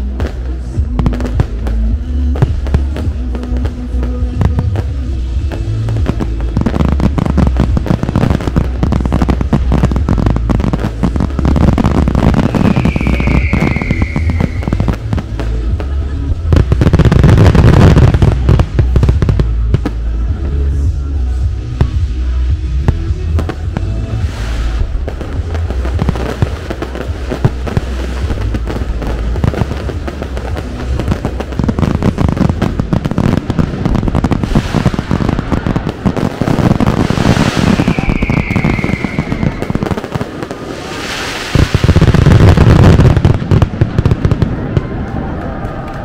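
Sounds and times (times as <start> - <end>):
show music: 0.0 - 44.5
fireworks bursts: 0.0 - 46.0
fireworks crackling and popping: 0.0 - 46.0
firework falling whistle: 12.3 - 15.1, 37.0 - 42.5.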